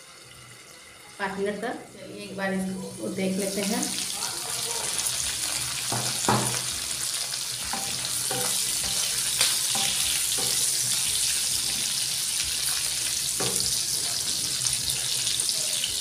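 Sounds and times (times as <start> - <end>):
liver and onions sizzling in oil: 0.0 - 16.0
wooden spatula knocking pan: 5.9 - 6.7.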